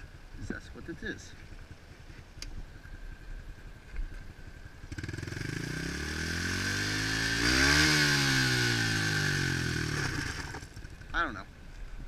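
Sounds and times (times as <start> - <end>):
motorbike engine accelerating: 4.8 - 11.2.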